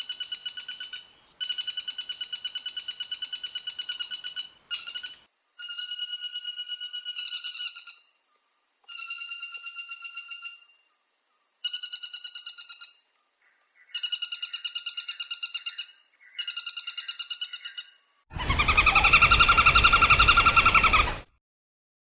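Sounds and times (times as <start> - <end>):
woodpecker rattling calls: 0.0 - 8.1, 11.6 - 21.3
louder lower bird call: 13.9 - 21.3.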